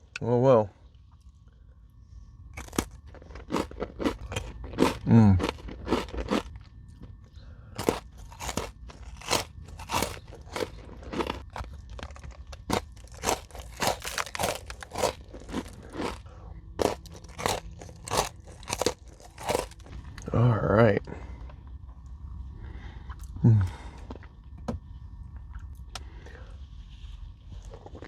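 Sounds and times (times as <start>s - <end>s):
person chewing crunchy food: 2.6s - 20.3s, 27.5s - 28.0s.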